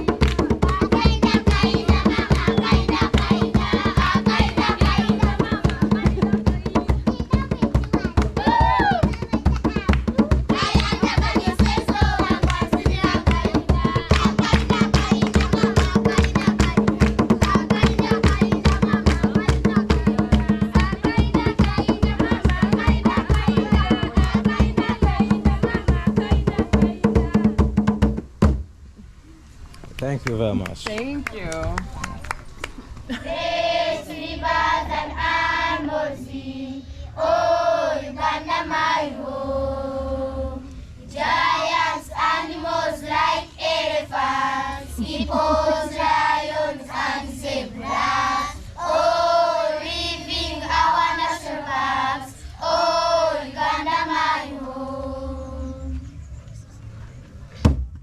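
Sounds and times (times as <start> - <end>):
people singing: 0.0 - 9.1, 9.7 - 27.7, 33.1 - 56.1
quick steady drumbeat: 0.0 - 28.6.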